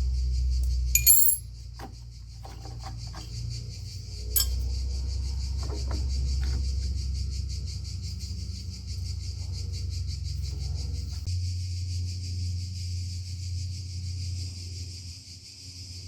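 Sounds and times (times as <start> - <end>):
steady low hum: 0.0 - 15.6
hand tools clinking on metal: 1.0 - 1.5, 4.4 - 4.7.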